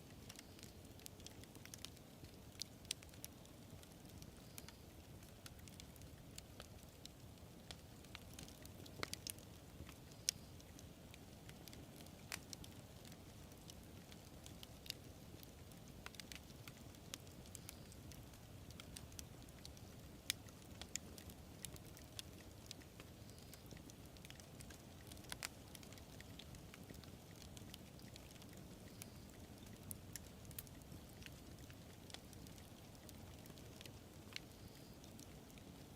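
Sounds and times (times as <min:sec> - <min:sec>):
burning wood crackling and popping: 0:00.0 - 0:35.9
campfire low roar: 0:00.0 - 0:35.9.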